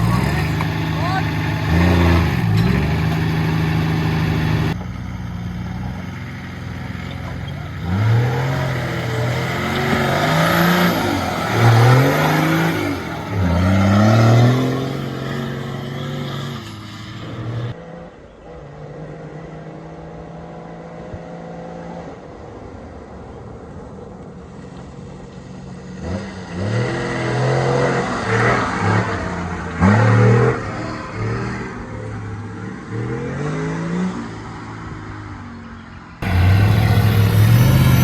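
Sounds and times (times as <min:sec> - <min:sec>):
diesel engine revving: 0:00.0 - 0:17.8, 0:36.2 - 0:38.0.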